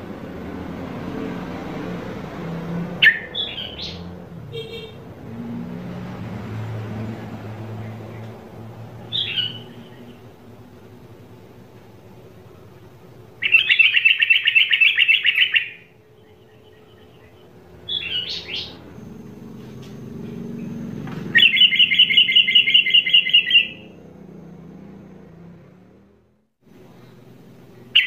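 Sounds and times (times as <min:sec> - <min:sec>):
bird trilling: 0:03.0 - 0:05.0, 0:09.0 - 0:10.4, 0:13.4 - 0:18.9, 0:21.3 - 0:24.0.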